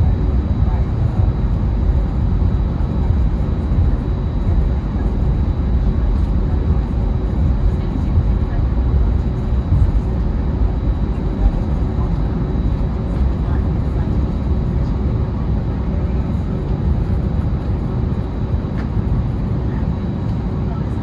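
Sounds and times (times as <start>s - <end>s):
faint steady hum: 0.0s - 21.0s
jet cabin low rumble: 0.0s - 21.0s.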